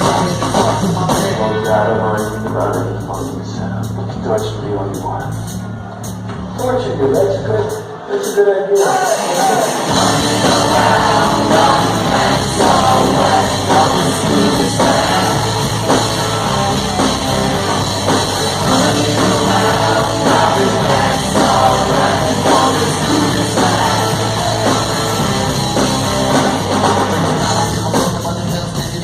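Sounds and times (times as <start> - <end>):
rock band playing loudly: 0.0 - 29.0
steady drum beat: 0.0 - 29.0.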